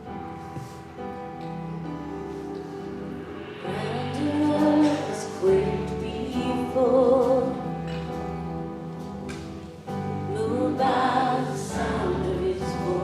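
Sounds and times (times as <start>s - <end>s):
person singing with vibrato: 3.6s - 8.8s, 10.0s - 13.0s.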